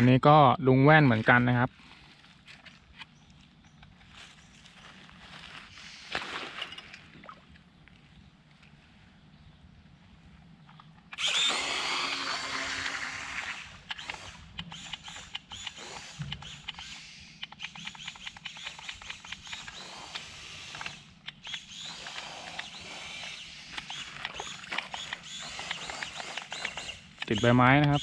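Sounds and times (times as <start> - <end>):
small electric motor whining: 11.1 - 28.0.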